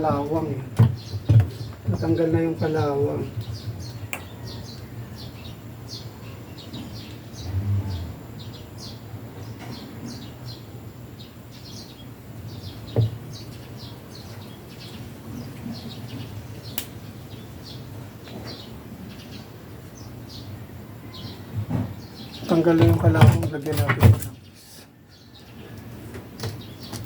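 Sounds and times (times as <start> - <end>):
small birds chirping: 0.0 - 27.0
low steady hum: 4.8 - 9.6.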